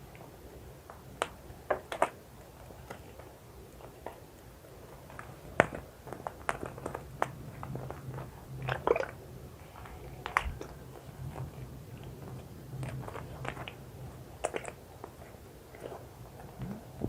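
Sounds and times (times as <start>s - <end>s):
short wet squishes: 8.6s - 9.2s.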